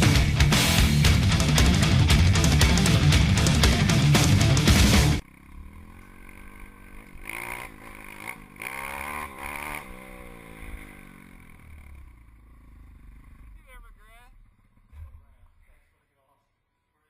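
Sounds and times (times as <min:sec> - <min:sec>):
heavy rock music: 0:00.0 - 0:05.2
pit bike engine revving: 0:00.0 - 0:15.7.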